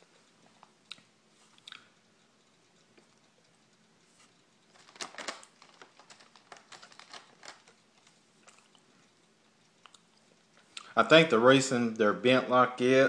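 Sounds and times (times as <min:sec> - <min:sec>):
crisp chewing clicks: 0:04.6 - 0:11.0.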